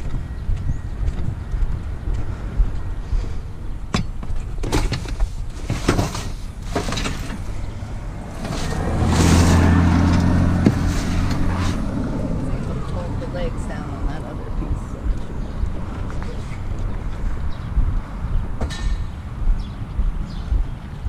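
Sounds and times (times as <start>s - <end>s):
vehicle engine humming: 6.4s - 21.0s
sharp knocks and clatters: 18.6s - 20.7s.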